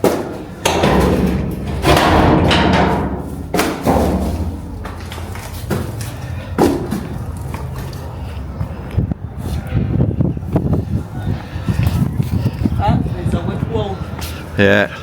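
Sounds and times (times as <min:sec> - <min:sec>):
dull thumps: 0:00.0 - 0:07.2
steady low rumbling: 0:00.4 - 0:14.2.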